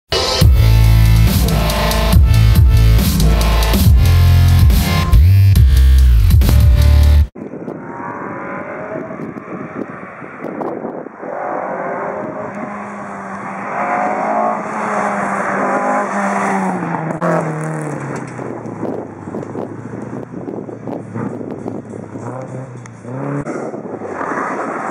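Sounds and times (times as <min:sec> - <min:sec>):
rally car engine at speed: 0:00.1 - 0:24.9.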